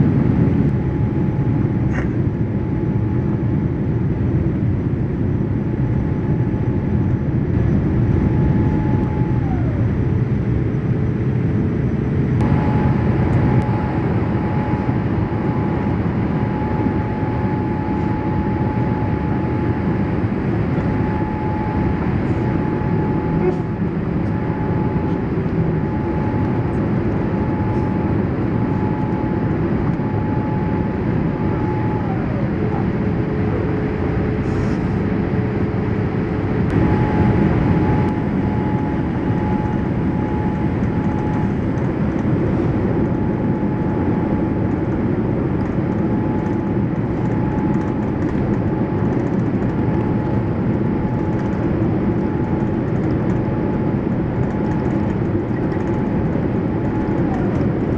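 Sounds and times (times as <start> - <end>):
aircraft cabin rumble and rushing air: 0.0 - 57.9
faint whine: 0.0 - 57.9.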